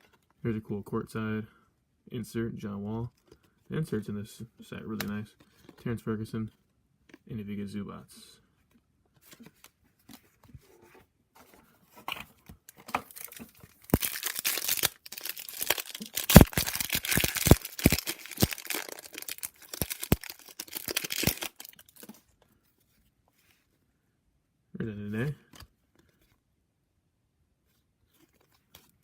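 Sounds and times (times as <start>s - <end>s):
wrapper tearing and crinkling: 13.0s - 22.2s.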